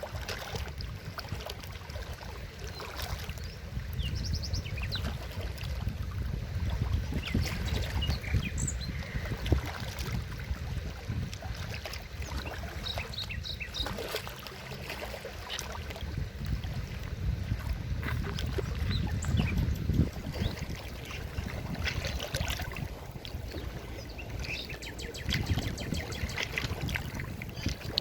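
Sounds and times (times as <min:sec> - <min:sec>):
stream running: 0:00.0 - 0:28.0
small birds chirping: 0:12.2 - 0:14.1, 0:23.5 - 0:26.6.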